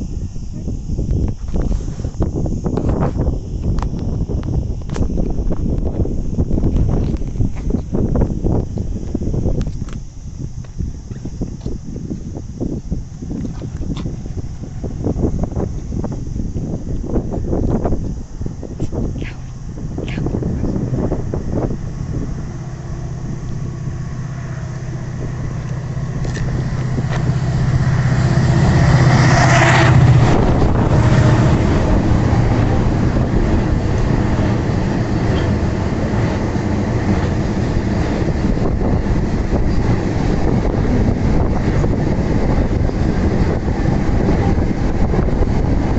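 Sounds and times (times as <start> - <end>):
locomotive low hum: 0.0 - 45.9
wagons rumbling on track: 17.2 - 45.9.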